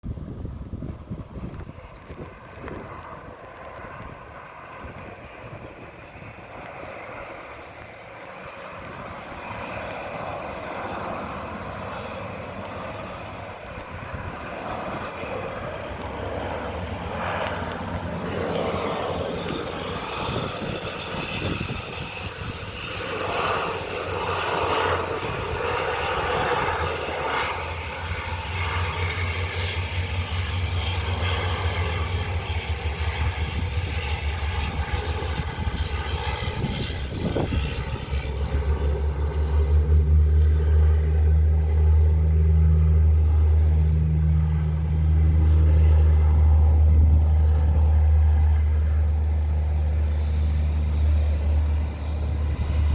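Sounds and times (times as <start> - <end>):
aircraft engines and propellers droning: 0.0 - 52.9
heavy low rumble: 24.9 - 52.9.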